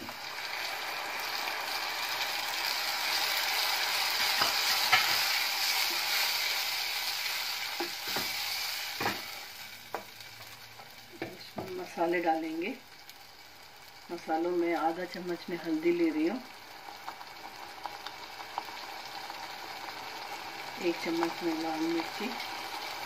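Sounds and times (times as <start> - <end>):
tomato sizzling in hot oil: 0.0 - 23.0
spoon scraping a pan: 4.2 - 6.6, 7.8 - 9.5.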